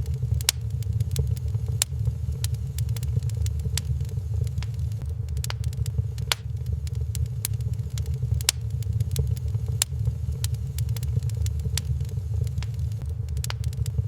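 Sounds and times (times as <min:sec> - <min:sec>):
fire crackles and pops: 0:00.0 - 0:14.0
fire low rumble: 0:00.0 - 0:14.0.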